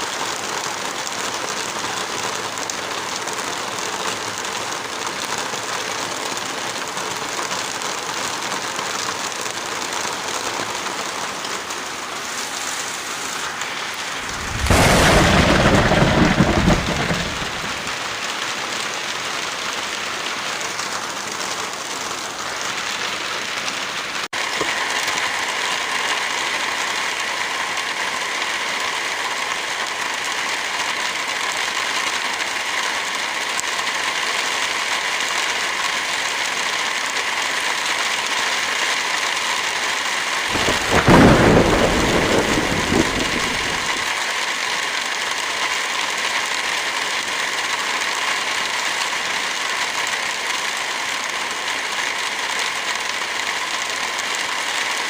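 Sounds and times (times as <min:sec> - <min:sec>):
heavy rain: 0:00.0 - 0:55.0
thunder rumble: 0:14.1 - 0:18.3, 0:40.5 - 0:44.1.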